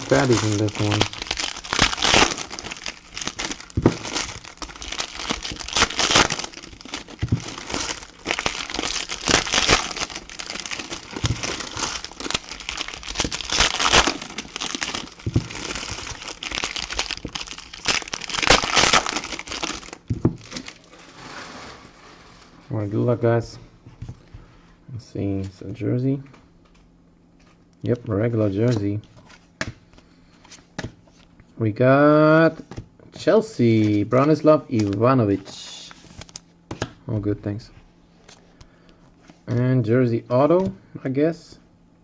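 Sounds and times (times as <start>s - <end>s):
plastic wrappers crinkling: 0.0s - 21.1s.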